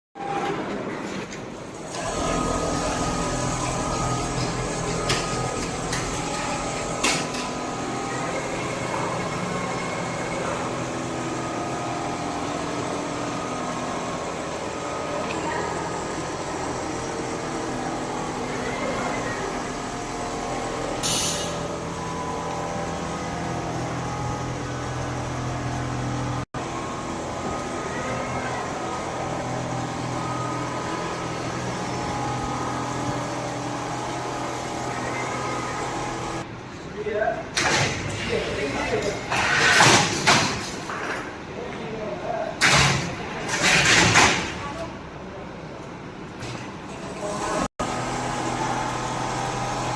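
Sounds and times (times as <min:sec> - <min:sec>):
quilting machine humming: 0:01.8 - 0:36.5, 0:46.9 - 0:49.9.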